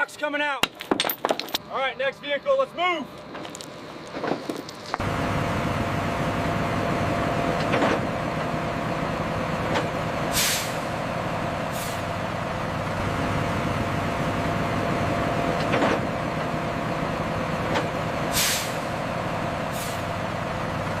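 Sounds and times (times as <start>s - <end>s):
heavy vehicle engine running: 1.9s - 21.0s
air brake hisses: 10.3s - 10.8s, 11.7s - 12.0s, 18.3s - 18.8s, 19.7s - 20.1s.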